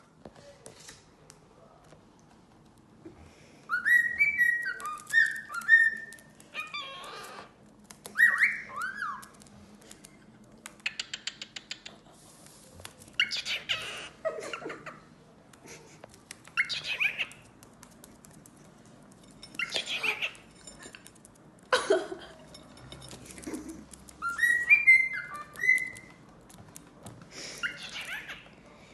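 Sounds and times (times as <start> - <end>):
cockatiel whistling: 3.7 - 6.2, 8.1 - 9.2, 24.2 - 26.1
cockatiel chattering calls: 13.2 - 14.2, 16.6 - 17.4, 19.6 - 20.4, 27.6 - 28.4.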